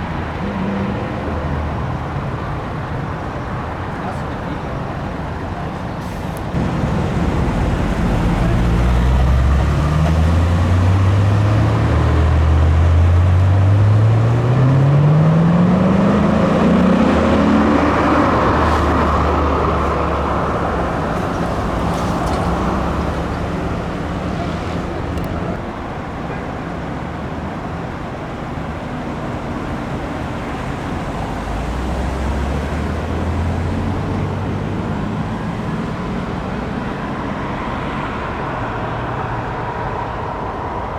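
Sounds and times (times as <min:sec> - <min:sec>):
engine running low: 0:00.0 - 0:40.9
road and traffic noise: 0:00.0 - 0:40.9
car engine accelerating: 0:06.4 - 0:26.1, 0:29.5 - 0:40.9.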